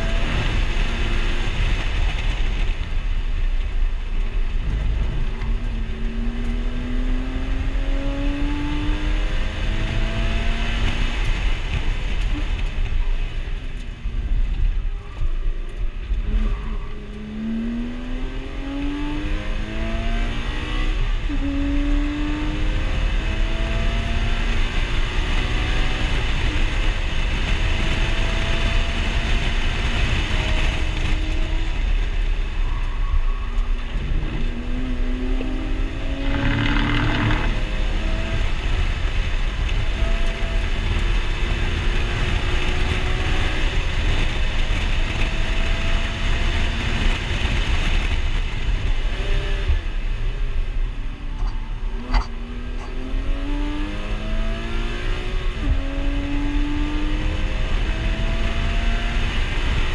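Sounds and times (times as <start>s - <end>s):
car engine revving through gears: 0.0s - 2.7s, 4.5s - 12.9s, 16.0s - 32.0s, 33.6s - 59.9s.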